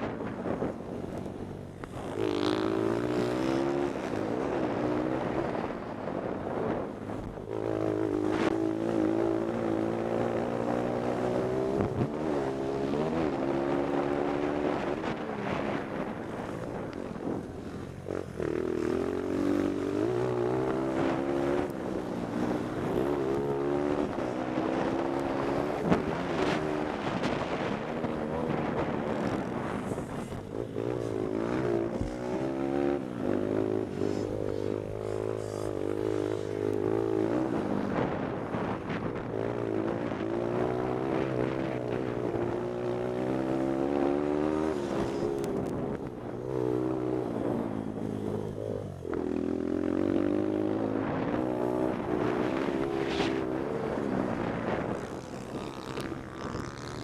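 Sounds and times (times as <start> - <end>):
pit bike engine racing: 0.0 - 57.0
wind noise on microphone: 0.0 - 57.0.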